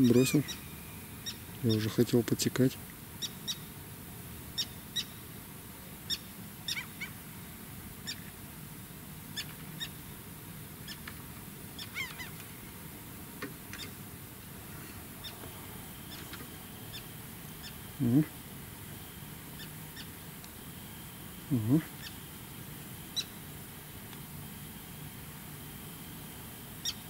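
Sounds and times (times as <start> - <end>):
long wavering bird call: 0.0 - 2.0, 6.1 - 7.2, 11.8 - 12.8, 14.7 - 23.6, 26.8 - 27.0
birds chirping: 0.0 - 3.8, 6.0 - 7.2, 9.3 - 12.9, 13.5 - 23.4.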